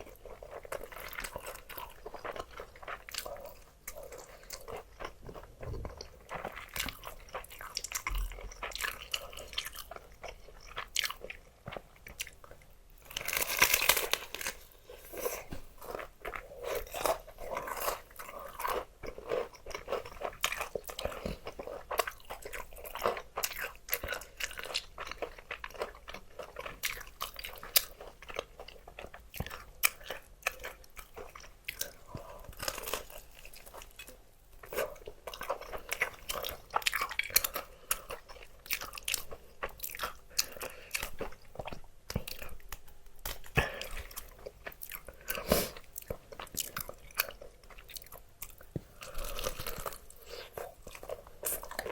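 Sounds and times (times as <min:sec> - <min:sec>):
crunching fried chicken: 0:00.0 - 0:14.8
chewing: 0:00.0 - 0:51.9.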